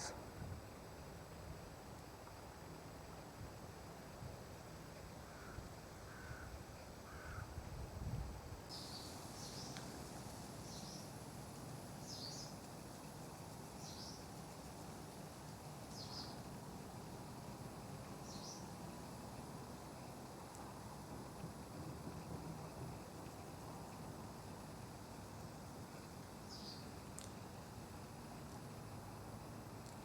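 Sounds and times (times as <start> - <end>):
crow cawing: 5.3 - 6.5, 7.1 - 7.5.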